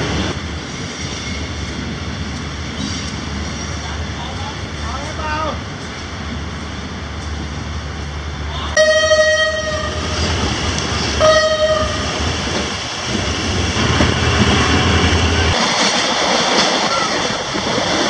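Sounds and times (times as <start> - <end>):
train rumbling along track: 0.0 - 18.0
train horn blasts: 8.8 - 10.3, 11.2 - 12.2.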